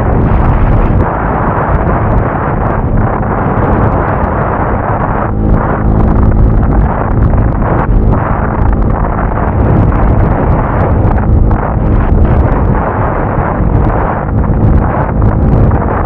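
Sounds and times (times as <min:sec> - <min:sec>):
motorcycle engine running: 0:00.0 - 0:16.0
wind buffeting on microphone: 0:00.0 - 0:16.0.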